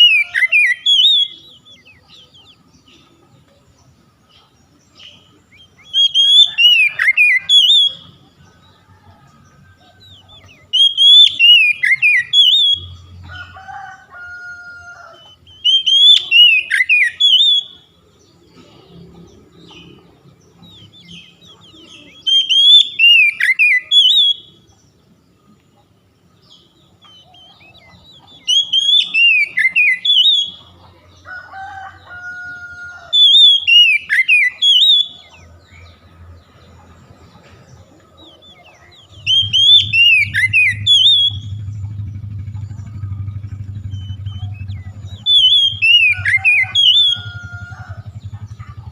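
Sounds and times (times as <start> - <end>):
bird whistled song phrases: 0.0 - 2.6, 5.0 - 8.2, 10.2 - 13.0, 15.0 - 17.9, 20.9 - 24.6, 27.0 - 30.7, 33.1 - 35.5, 38.6 - 41.7, 43.8 - 47.4.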